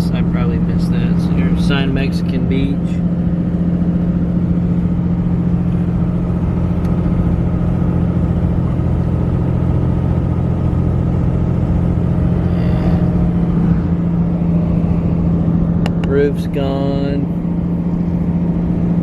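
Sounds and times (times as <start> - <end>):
engine hum inside vehicle: 0.0 - 19.0
tyre and road rumble: 0.0 - 19.0.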